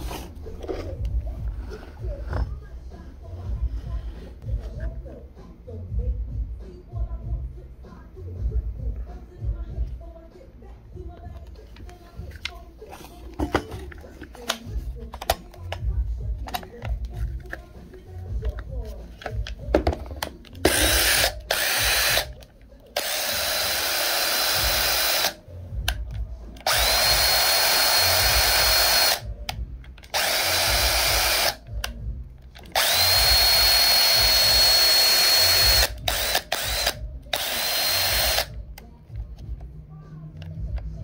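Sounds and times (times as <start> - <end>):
impact driver motor whine: 20.7 - 22.3, 23.0 - 25.4, 26.6 - 29.2, 30.1 - 31.6, 32.7 - 38.5.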